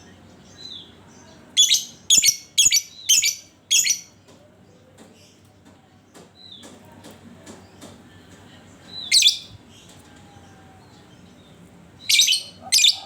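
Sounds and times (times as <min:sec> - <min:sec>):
lovebird harsh calls: 0:12.1 - 0:13.0.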